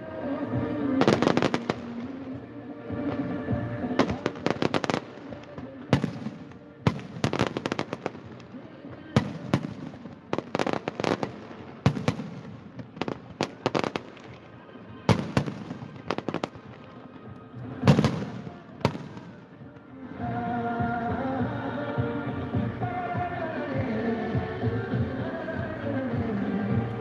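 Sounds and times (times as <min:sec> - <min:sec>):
music: 0:00.0 - 0:27.0
fireworks bangs and crackles: 0:00.6 - 0:02.4, 0:03.0 - 0:20.0.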